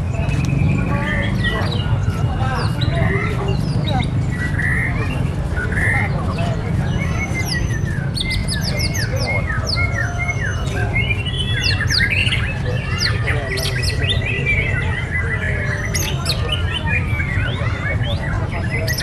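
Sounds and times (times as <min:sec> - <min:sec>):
birds chirping and whistling: 0:00.0 - 0:19.0.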